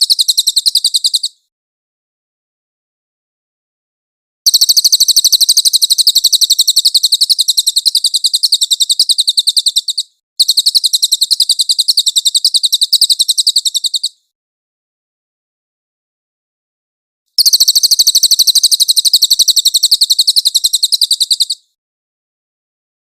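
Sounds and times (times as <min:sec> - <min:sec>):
bird trilling rapidly: 0:00.0 - 0:01.4, 0:04.5 - 0:14.2, 0:17.4 - 0:21.7.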